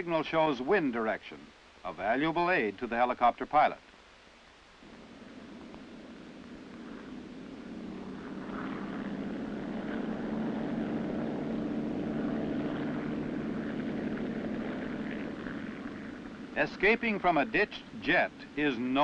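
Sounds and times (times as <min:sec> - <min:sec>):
helicopter engine and rotor: 0:04.9 - 0:18.6.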